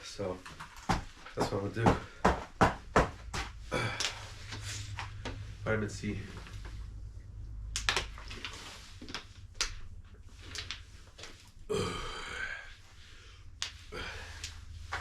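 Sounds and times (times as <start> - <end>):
person burping: 11.7 - 12.7.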